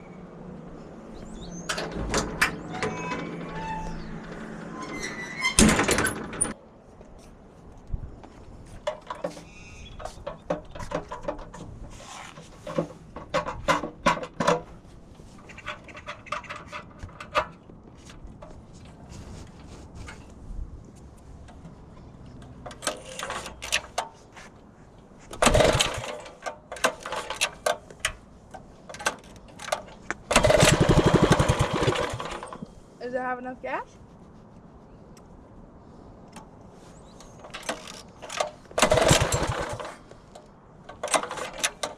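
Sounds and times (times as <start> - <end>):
clicks and clanks of tools: 8.8 - 14.7, 22.4 - 24.2, 25.3 - 30.8, 37.2 - 41.9
rasping bursts: 38.8 - 40.0.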